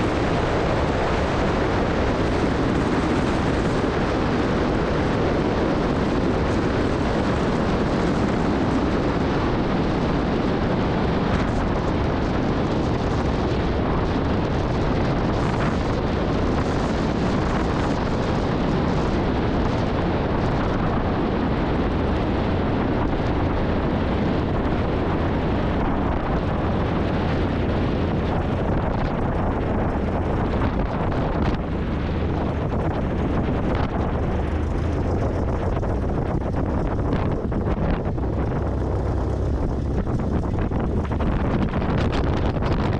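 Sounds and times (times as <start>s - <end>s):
propeller airplane engine drone: 0.0s - 42.9s.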